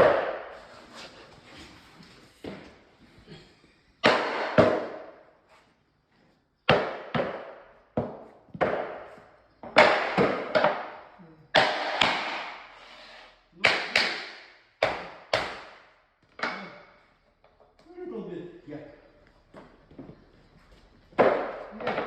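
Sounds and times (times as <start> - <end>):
knocks on timber floorboards: 6.7 - 12.6, 21.1 - 22.0.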